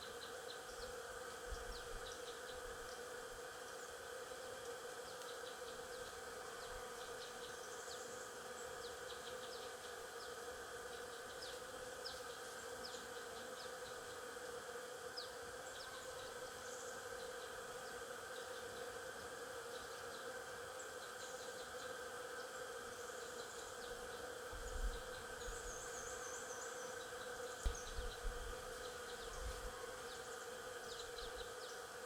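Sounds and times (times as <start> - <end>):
bees buzzing: 11.8 - 32.0.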